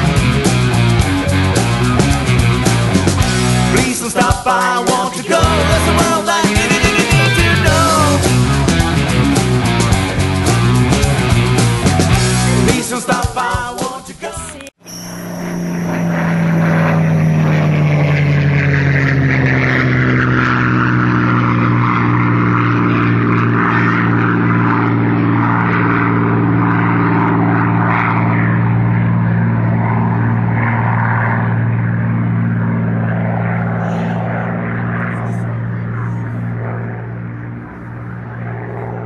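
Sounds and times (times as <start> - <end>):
model plane motor droning: 14.8 - 39.0.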